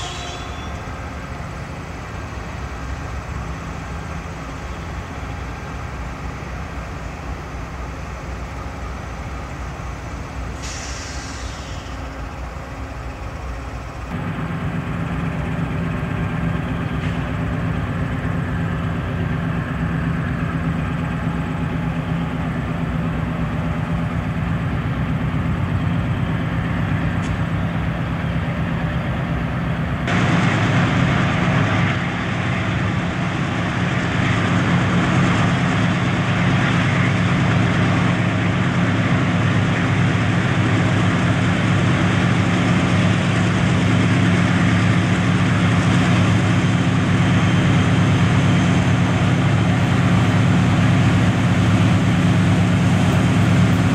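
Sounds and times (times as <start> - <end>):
diesel locomotive humming: 0.0 - 53.9
brief hiss: 10.5 - 12.2.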